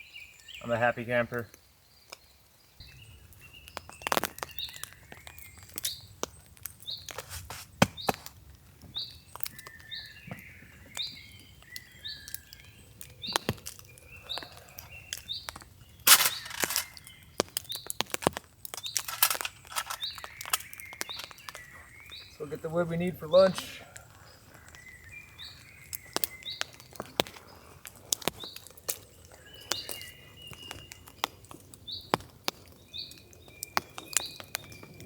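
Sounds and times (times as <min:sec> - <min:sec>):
sharp taps and cracks: 0:03.7 - 0:08.4, 0:15.1 - 0:21.6, 0:25.9 - 0:34.8
birds chirping: 0:08.9 - 0:35.0.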